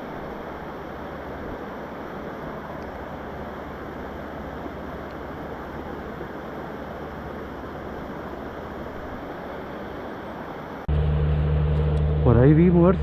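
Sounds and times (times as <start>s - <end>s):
river current rushing: 0.0s - 10.9s.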